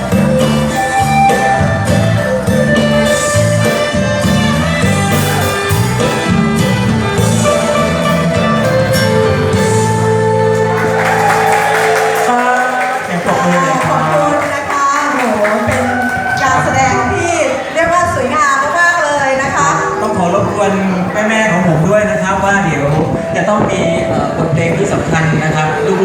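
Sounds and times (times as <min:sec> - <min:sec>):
live band music: 0:00.0 - 0:26.0.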